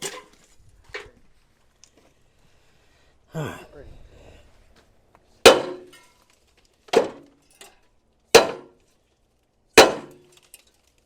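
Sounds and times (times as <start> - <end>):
sledgehammer clanging on steel: 5.4 - 6.2, 6.9 - 8.8, 9.8 - 10.6.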